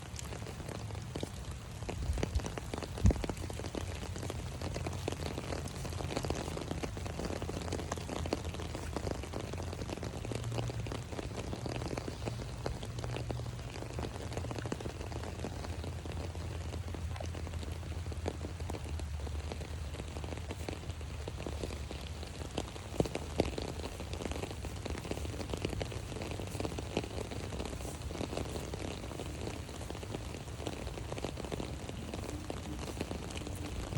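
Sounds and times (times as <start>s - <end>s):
rain falling on an umbrella: 0.0s - 33.9s.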